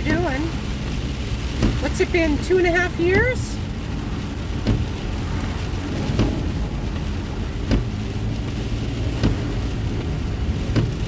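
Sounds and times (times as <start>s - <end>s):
rain and road noise in car: 0.0s - 11.0s
windshield wiper knocks: 1.4s - 1.9s, 4.4s - 5.2s, 5.9s - 11.0s.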